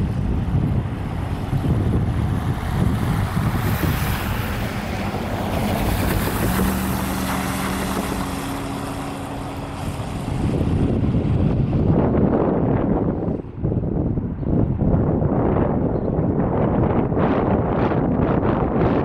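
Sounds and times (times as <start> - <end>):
diesel locomotive running: 0.0 - 13.6
wind buffeting microphone: 0.0 - 19.0.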